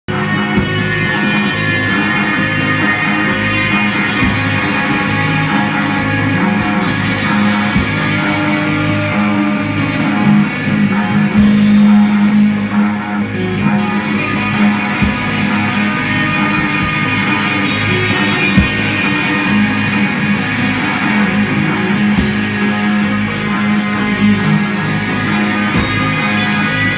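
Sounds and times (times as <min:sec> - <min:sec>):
rock band playing live: 0:00.1 - 0:26.9.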